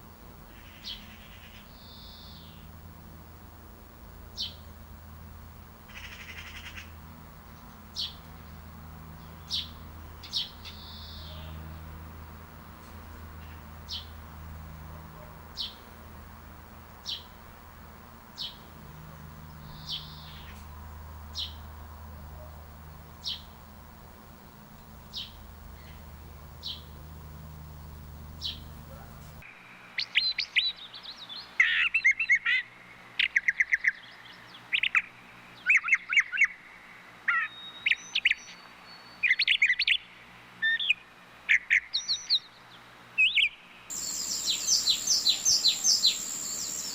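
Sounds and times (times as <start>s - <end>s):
bird chirping: 0.5s - 2.7s, 4.3s - 4.8s, 5.9s - 11.9s, 13.4s - 15.9s, 16.7s - 17.6s, 18.2s - 29.4s, 43.2s - 46.9s
bird song with trills: 0.5s - 2.7s, 4.4s - 4.8s, 5.9s - 11.8s, 13.4s - 14.2s, 15.2s - 15.9s, 17.0s - 17.4s, 18.3s - 20.7s, 21.3s - 21.6s, 22.4s - 29.4s, 37.3s - 42.6s, 43.2s - 46.9s.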